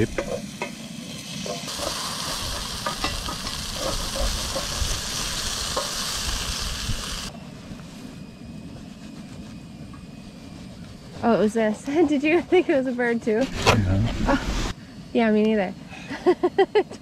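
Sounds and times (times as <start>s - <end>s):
potatoes sizzling in a pan: 0.0s - 7.3s.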